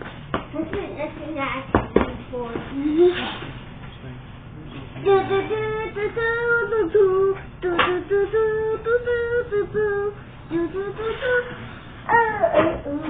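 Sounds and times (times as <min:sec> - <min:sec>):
child singing: 0:05.0 - 0:11.5, 0:12.1 - 0:13.0.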